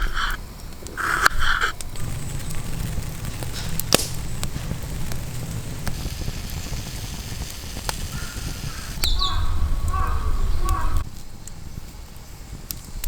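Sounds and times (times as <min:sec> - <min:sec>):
campfire crackling and popping: 0:00.0 - 0:13.0
low rumble: 0:01.7 - 0:11.0.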